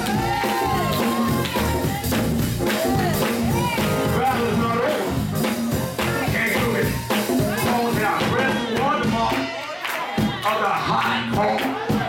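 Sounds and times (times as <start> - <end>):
organ chords: 0.0 - 9.5
drum beat: 0.0 - 12.0.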